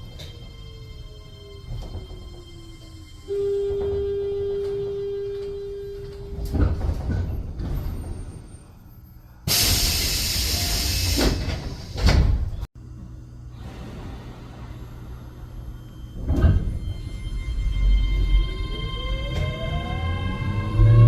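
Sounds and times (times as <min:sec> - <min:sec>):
steady warning tone: 0:00.0 - 0:06.8, 0:14.4 - 0:21.0
loud air hiss: 0:09.5 - 0:12.1.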